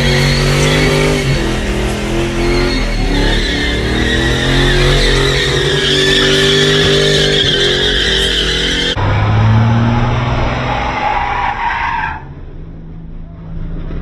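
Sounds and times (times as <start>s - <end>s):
tyres squealing: 0.0s - 9.0s
car engine revving high: 0.0s - 11.6s.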